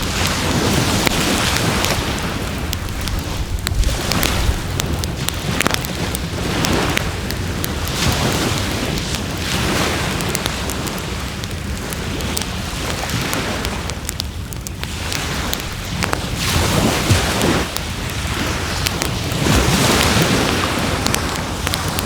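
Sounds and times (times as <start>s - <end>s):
waves rushing on shore: 0.0s - 22.0s
wood fire crackling and popping: 0.0s - 22.0s.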